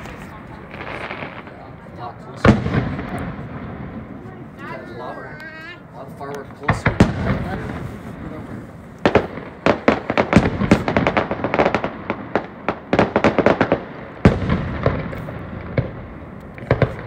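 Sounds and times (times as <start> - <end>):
fireworks crackling pops and bangs: 0.0 - 17.0
loud firework boom: 2.4 - 4.2, 6.6 - 12.5.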